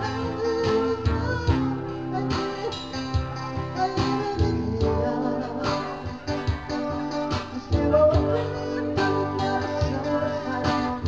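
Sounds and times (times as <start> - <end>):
guitar playing: 0.0 - 11.0
live band music: 0.0 - 11.0
person singing: 0.0 - 11.0.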